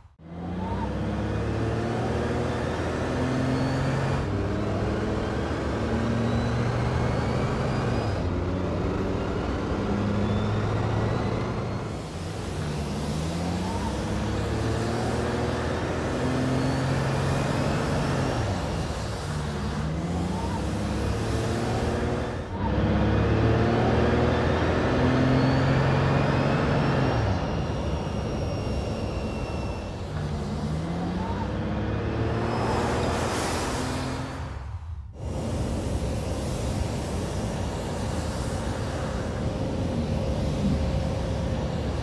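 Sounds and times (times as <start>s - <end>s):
car engine accelerating: 0.2s - 42.0s
faint high whine: 27.3s - 31.5s.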